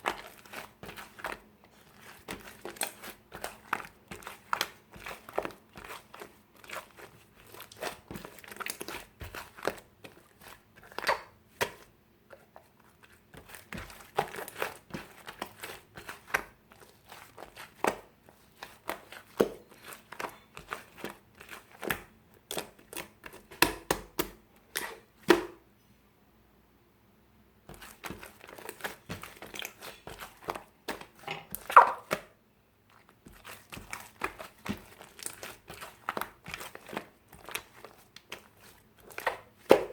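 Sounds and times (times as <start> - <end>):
slime squeezed by hand: 31.2 - 32.2.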